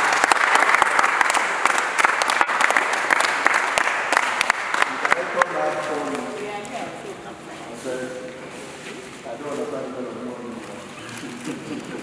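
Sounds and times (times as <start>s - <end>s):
people applauding: 0.0s - 6.3s.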